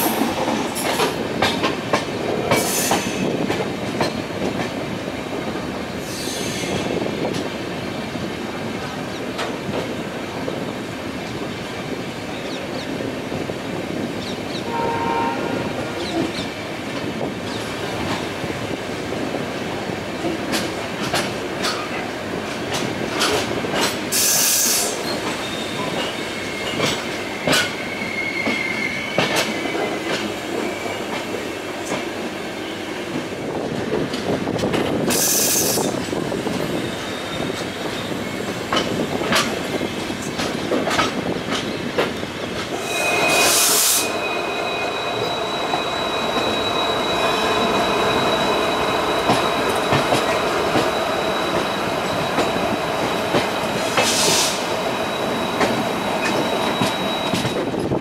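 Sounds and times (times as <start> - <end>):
train rolling rumble: 0.0 - 58.0
train horn: 14.6 - 16.2, 42.8 - 45.3
wheels clacking over rail joints: 20.2 - 24.2, 44.2 - 58.0.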